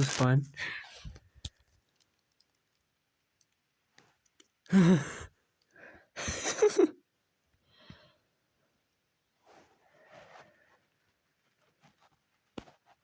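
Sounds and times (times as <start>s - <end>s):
person sighing: 4.7s - 5.3s.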